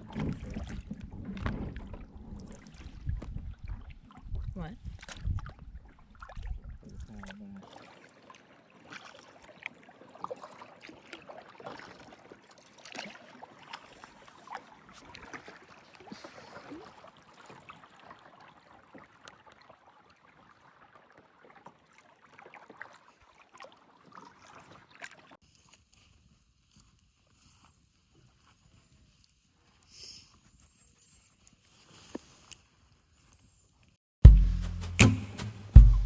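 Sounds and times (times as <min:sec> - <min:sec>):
paddle splashing water: 0:00.0 - 0:25.7.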